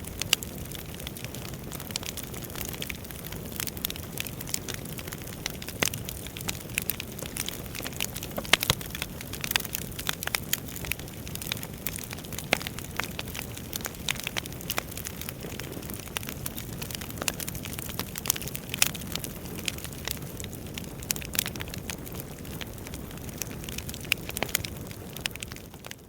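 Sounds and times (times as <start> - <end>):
burning logs crackling and popping: 0.0 - 26.0.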